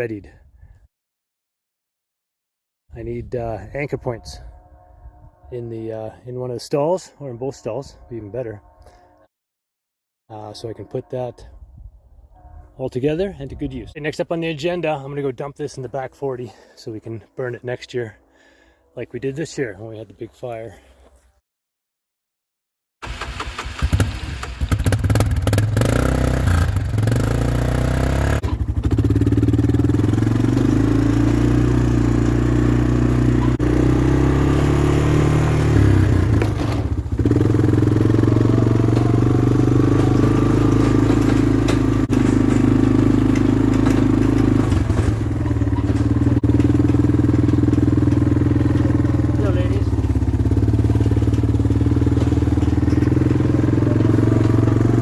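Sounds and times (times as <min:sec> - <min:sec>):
vehicle engine running: 0:25.0 - 0:55.0.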